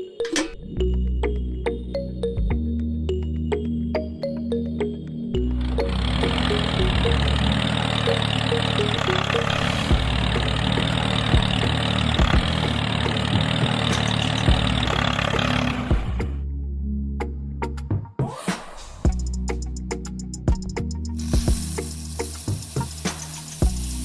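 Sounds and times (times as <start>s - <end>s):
background music: 0.0s - 24.0s
machine engine running: 5.5s - 16.4s.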